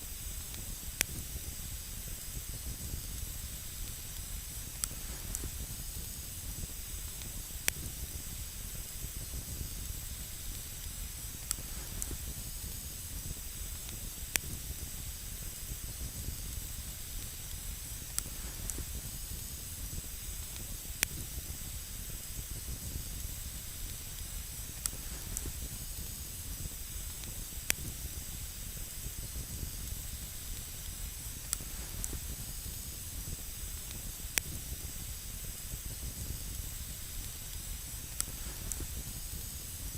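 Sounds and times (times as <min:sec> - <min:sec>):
campfire hissing and rumbling: 0:00.0 - 0:39.9
sharp fire crackles: 0:00.0 - 0:39.9.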